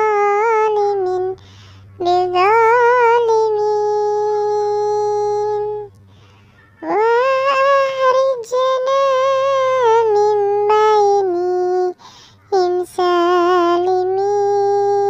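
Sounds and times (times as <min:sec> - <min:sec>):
high-pitched singing voice: 0:00.0 - 0:01.4, 0:02.0 - 0:05.9, 0:06.8 - 0:15.0.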